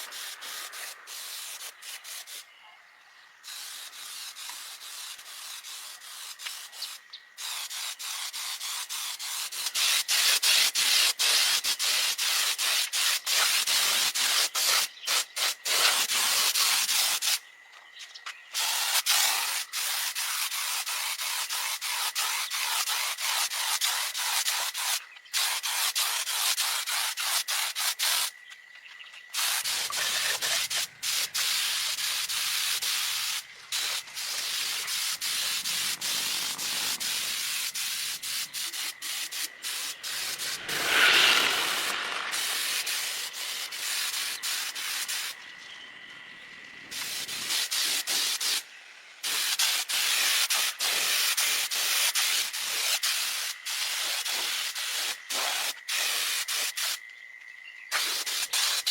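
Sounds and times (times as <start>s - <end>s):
abrasive sanding: 29.4s - 45.3s.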